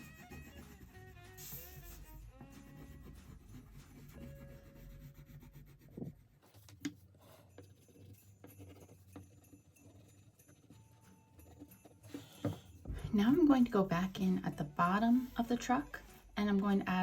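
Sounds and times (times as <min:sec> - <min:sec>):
crayon scratching on paper: 0:00.0 - 0:12.6.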